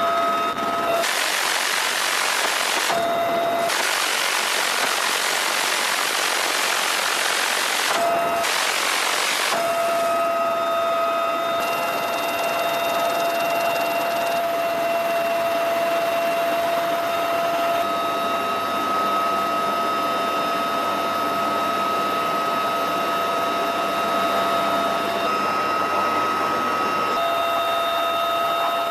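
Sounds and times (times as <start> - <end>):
helicopter roar: 0.0 - 18.1, 22.4 - 28.9
high steady whine: 0.0 - 28.9.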